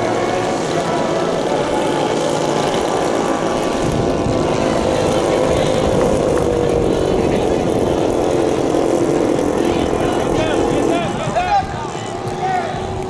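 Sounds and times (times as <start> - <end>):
model airplane engine running: 0.0 - 13.0.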